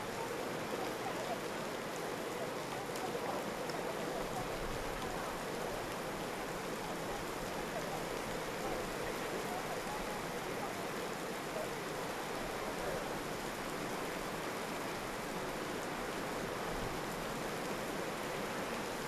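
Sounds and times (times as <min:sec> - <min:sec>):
driving rain: 0:00.0 - 0:19.0.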